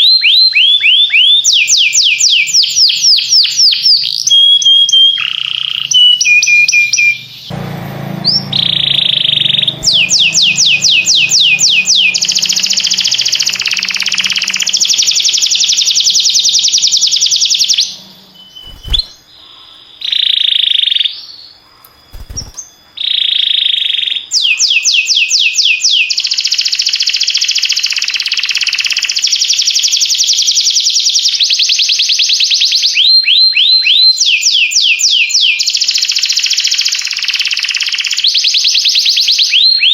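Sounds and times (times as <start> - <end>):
canary singing trills: 0.0 - 29.3.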